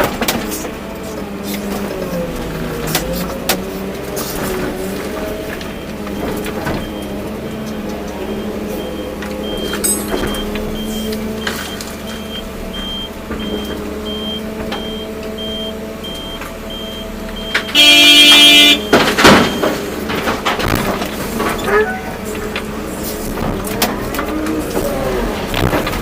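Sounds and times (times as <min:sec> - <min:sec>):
heavy diesel machinery running: 0:00.0 - 0:26.0
reversing alarm beeping: 0:05.6 - 0:19.9
horn: 0:17.8 - 0:18.8.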